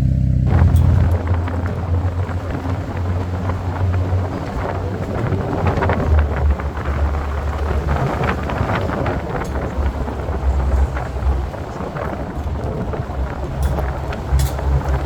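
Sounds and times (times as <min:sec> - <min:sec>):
engine and road rumble: 0:00.0 - 0:15.0
wind buffeting microphone: 0:00.0 - 0:15.0.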